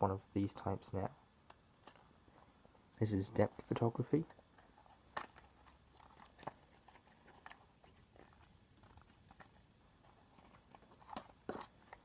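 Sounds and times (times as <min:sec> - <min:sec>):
package rustling and clicks: 0:04.8 - 0:12.0.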